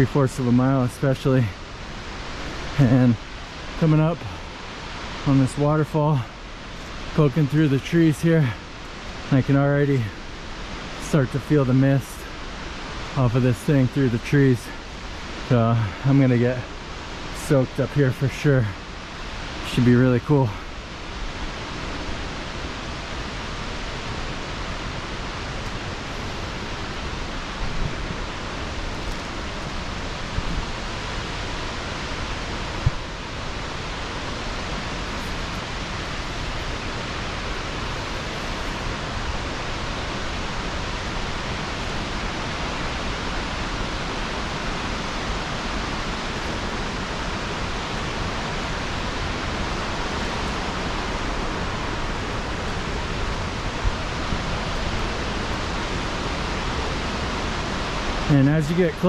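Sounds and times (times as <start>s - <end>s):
waterfall roaring: 0.0s - 59.0s.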